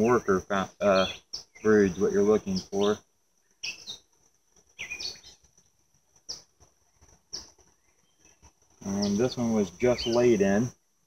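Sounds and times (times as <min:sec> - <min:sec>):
bird chirps: 0:00.0 - 0:10.7
high-pitched insect trill: 0:00.0 - 0:10.8.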